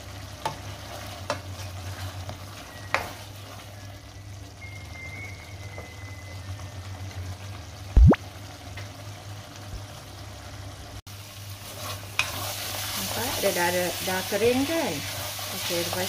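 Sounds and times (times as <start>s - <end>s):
filling sizzling and bubbling in pan: 0.0s - 16.0s
spatula scraping a pan: 11.5s - 16.0s.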